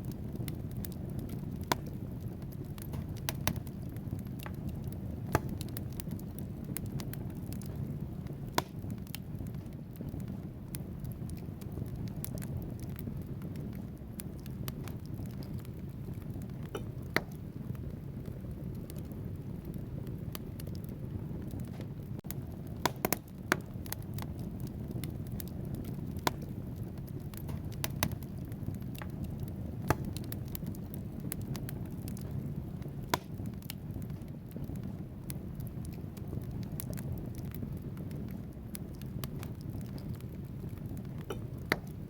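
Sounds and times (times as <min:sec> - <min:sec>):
fire crackles and pops: 0:00.0 - 0:42.0
wood fire burning: 0:00.0 - 0:42.0.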